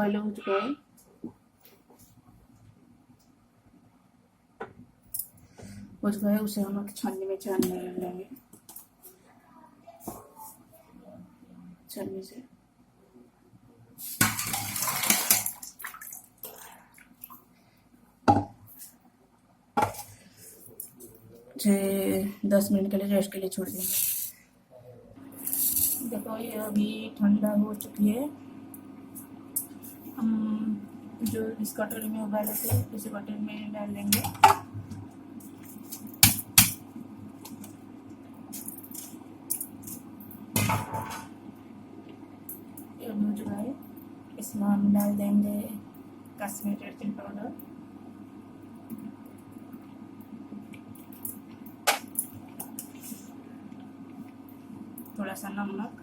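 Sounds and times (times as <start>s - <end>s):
low steady hum: 0.0s - 56.0s
water splashing into strainer: 14.1s - 17.4s
water dripping: 14.2s - 17.4s.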